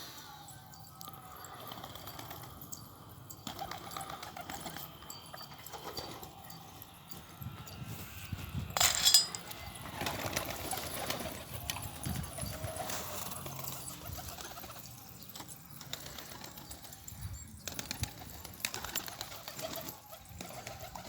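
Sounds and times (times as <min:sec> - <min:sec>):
pigeon wings flapping: 0:03.4 - 0:04.9, 0:09.9 - 0:17.0, 0:17.6 - 0:21.0.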